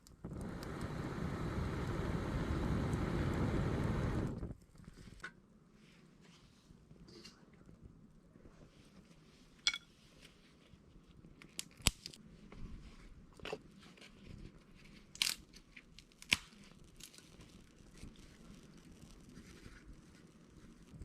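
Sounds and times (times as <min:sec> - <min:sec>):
sharp pops and snaps: 0:00.0 - 0:04.6, 0:16.0 - 0:17.2
wood fire crackling: 0:00.0 - 0:04.8.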